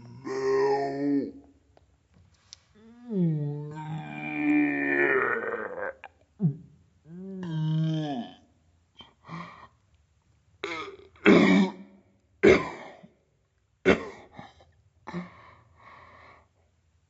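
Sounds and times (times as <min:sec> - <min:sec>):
person coughing: 0:12.4 - 0:13.1.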